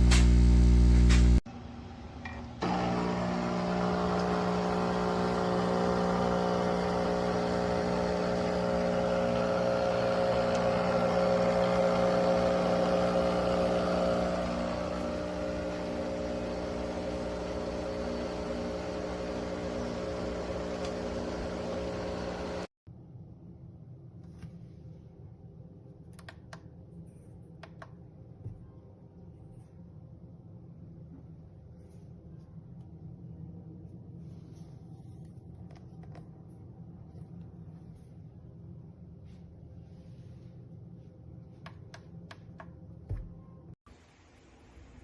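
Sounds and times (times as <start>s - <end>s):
coffee machine pump buzzing: 0.0s - 1.5s, 2.6s - 22.7s.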